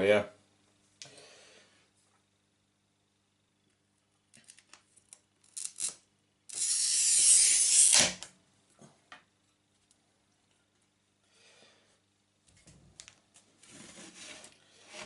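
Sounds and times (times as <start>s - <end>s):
glass cutter scoring glass: 5.6s - 8.3s.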